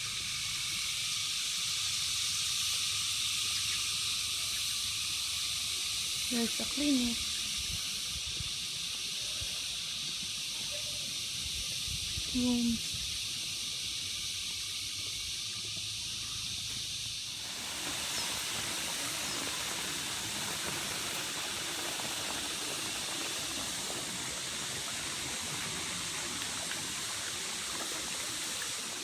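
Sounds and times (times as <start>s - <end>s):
crickets chirping: 0.0s - 29.0s
flowing water: 17.2s - 29.0s.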